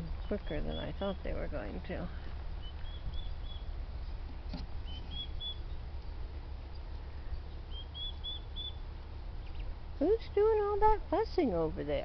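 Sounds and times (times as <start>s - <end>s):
low background rumble: 0.0s - 12.0s
bird high chirps: 2.6s - 4.2s, 4.8s - 5.8s, 6.7s - 9.7s.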